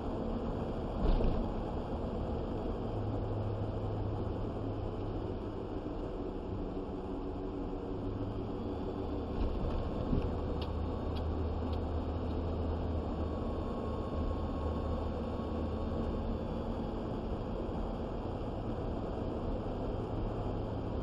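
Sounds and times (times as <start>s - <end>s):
vehicle engine and road noise: 0.0s - 21.0s
faint light ticks: 10.2s - 12.4s.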